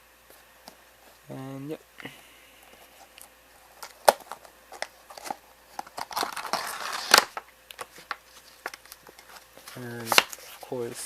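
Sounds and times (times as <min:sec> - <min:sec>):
packaging rustling and tearing: 0:03.8 - 0:11.0.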